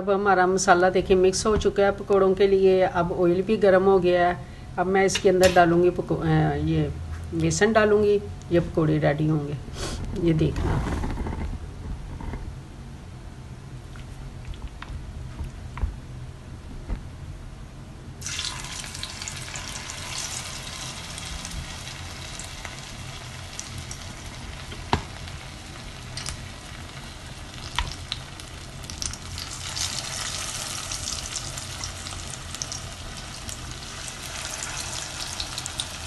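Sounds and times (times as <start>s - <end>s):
batter sizzling in hot oil: 18.2s - 36.0s.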